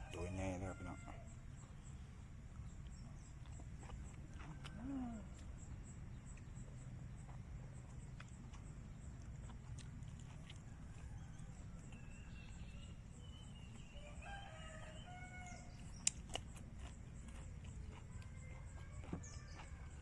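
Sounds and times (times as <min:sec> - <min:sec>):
distant rooster crowing: 0:00.0 - 0:01.6, 0:04.0 - 0:05.9, 0:10.4 - 0:16.4, 0:17.2 - 0:20.0
sharp clicks: 0:15.9 - 0:16.4.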